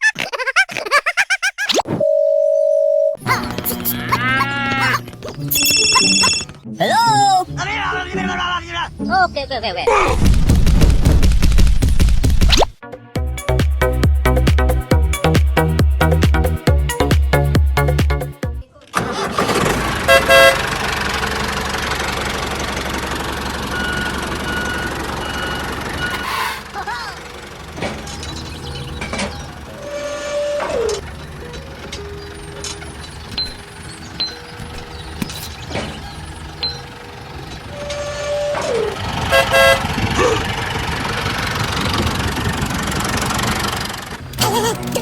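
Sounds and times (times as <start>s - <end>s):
horn toot: 3.3s - 6.4s, 20.0s - 20.7s, 37.8s - 40.4s
short high beeps: 5.5s - 6.5s
vehicle engine running: 19.2s - 45.0s.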